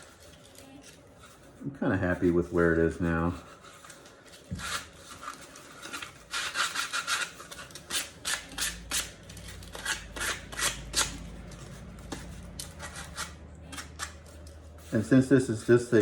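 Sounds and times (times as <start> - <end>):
sandpaper rubbing on foam: 6.2 - 13.4.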